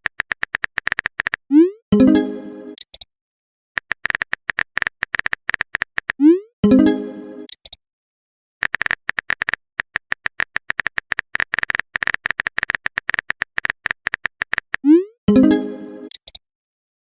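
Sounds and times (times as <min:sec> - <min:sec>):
keyboard typing clicks: 0:00.0 - 0:01.4, 0:03.8 - 0:06.2, 0:08.6 - 0:15.0, 0:16.1 - 0:16.4
message notification chime: 0:02.0 - 0:02.8, 0:06.6 - 0:07.5, 0:15.3 - 0:16.1.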